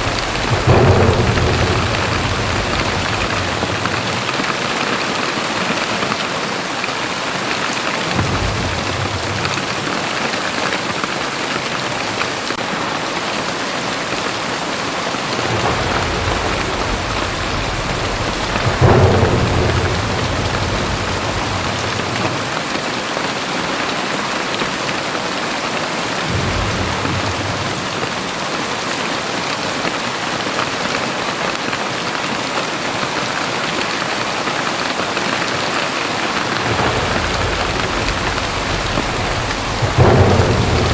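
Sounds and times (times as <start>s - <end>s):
thunder crack: 0.0s - 6.2s, 8.0s - 12.6s, 14.9s - 23.1s, 26.0s - 29.5s, 35.7s - 40.9s
thunder rumbling: 0.0s - 6.2s, 7.9s - 12.6s, 14.9s - 23.1s, 26.0s - 29.5s, 35.7s - 40.9s
heavy rain pouring: 0.0s - 40.9s.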